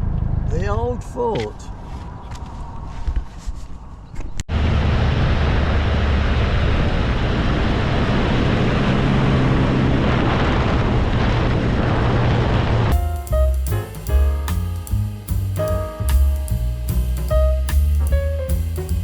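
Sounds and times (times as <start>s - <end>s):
car engine drone: 0.0s - 3.1s, 4.5s - 13.6s
wind and road noise: 0.0s - 13.6s
music with drums and piano: 12.9s - 19.0s.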